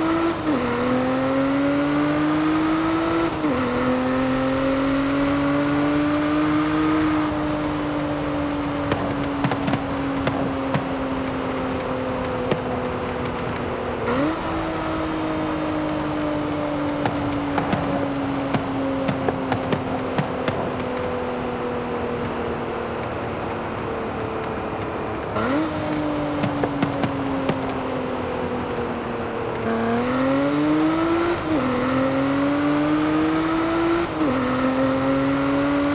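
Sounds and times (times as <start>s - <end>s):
car engine droning: 0.0s - 35.9s.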